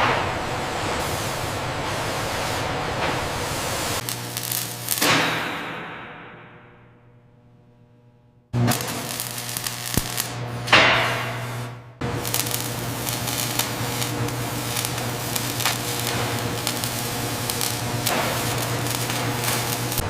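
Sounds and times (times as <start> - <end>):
steady machine hum: 5.8 - 20.0
loud hiss: 8.6 - 11.4, 12.0 - 20.0.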